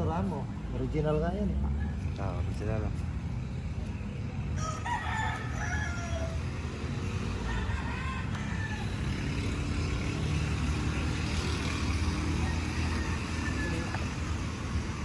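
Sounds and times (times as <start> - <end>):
drawn-out bird call: 11.6 - 15.0.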